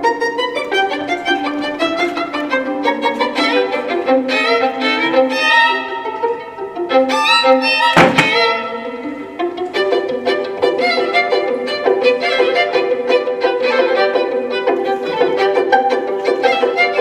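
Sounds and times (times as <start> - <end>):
violin bowed notes: 0.0 - 17.0
sharp thump: 7.9 - 8.6.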